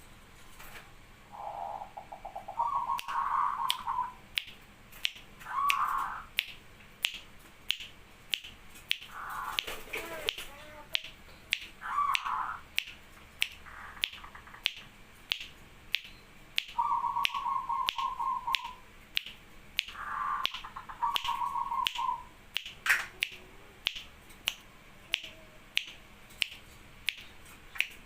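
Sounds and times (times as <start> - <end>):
dove cooing: 1.3 - 4.2, 5.4 - 6.3, 9.1 - 11.0, 11.8 - 12.7, 16.8 - 18.8, 19.9 - 22.3
sharp regular ticks: 1.8 - 28.0.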